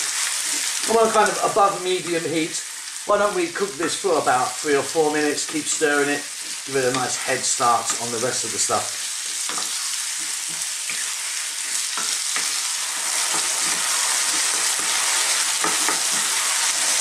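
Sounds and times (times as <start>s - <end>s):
potatoes and onions sizzling in oil: 0.0s - 17.0s
wooden spoon scraping a pan: 9.0s - 17.0s.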